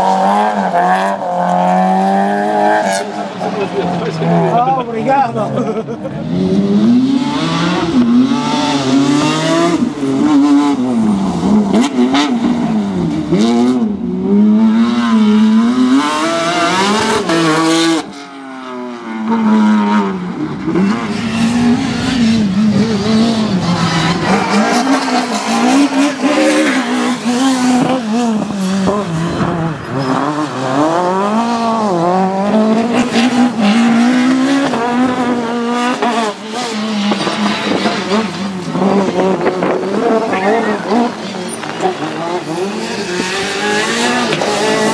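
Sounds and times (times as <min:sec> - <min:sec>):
rally car engines revving: 0:00.0 - 0:44.9.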